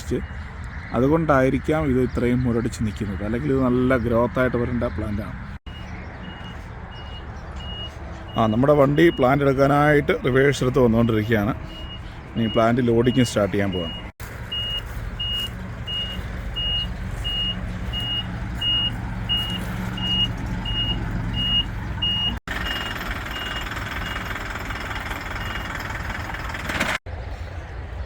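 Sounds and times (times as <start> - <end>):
vehicle backup alarm beeping: 5.7 - 27.0
vehicle engine running: 13.7 - 28.0.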